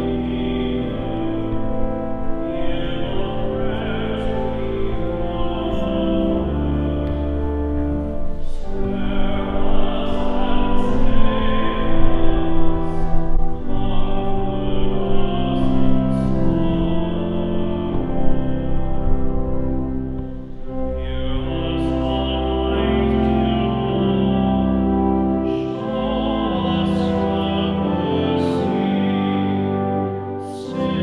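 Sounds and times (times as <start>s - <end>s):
organ chords: 0.0s - 31.0s
voices singing a hymn: 0.0s - 31.0s.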